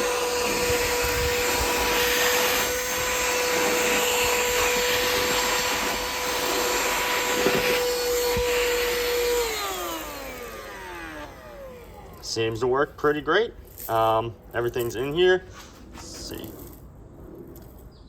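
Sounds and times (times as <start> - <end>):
handheld vacuum running: 0.0 - 12.3.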